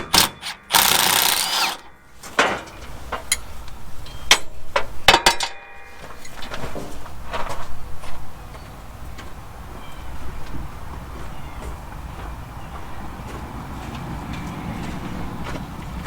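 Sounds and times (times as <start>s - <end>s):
power tool running: 0.0s - 1.9s.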